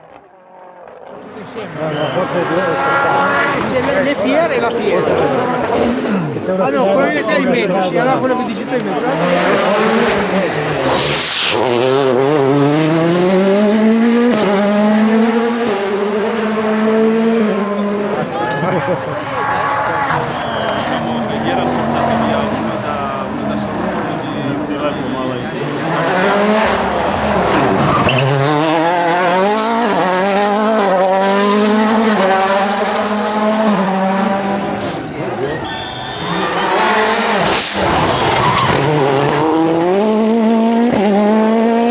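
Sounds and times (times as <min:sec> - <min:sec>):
rally car engine accelerating: 0:00.0 - 0:06.4, 0:08.1 - 0:41.9
brief hiss: 0:10.7 - 0:11.7, 0:37.3 - 0:38.2.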